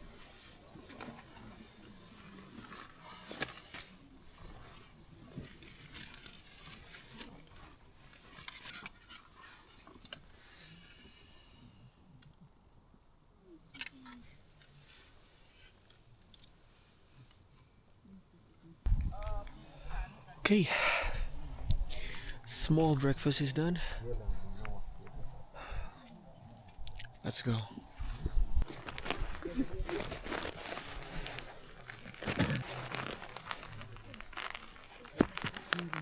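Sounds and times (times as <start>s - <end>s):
faint rustling: 27.9s - 36.0s.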